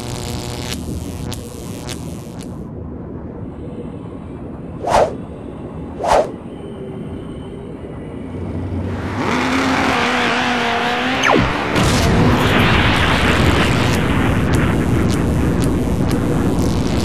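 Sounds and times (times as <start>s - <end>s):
quick whooshes: 4.8s - 5.2s, 6.0s - 6.4s
engine-like noise: 4.8s - 17.0s.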